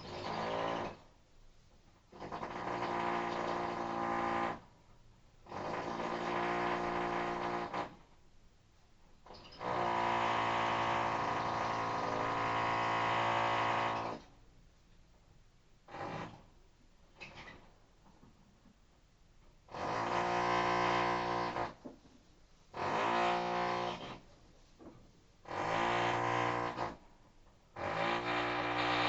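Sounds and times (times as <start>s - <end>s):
rotary hammer drilling: 0.0s - 1.0s, 2.1s - 4.6s, 5.5s - 7.9s, 9.4s - 14.3s, 25.5s - 27.0s, 27.8s - 29.0s.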